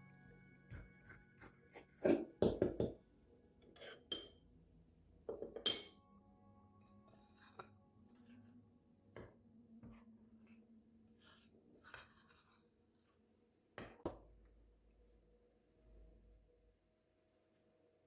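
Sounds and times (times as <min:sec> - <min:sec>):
kitchenware knocks and clinks: 0:02.1 - 0:03.0, 0:03.8 - 0:04.4, 0:05.3 - 0:05.9.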